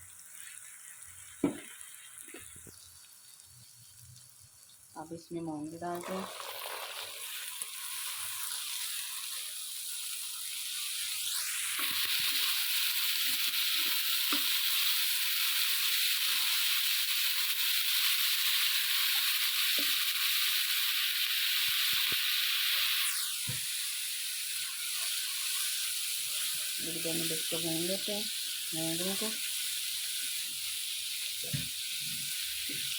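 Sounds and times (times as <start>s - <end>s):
lentils sizzling in a pan: 0.0s - 32.9s
spoon knocking on a pan: 1.4s - 1.7s.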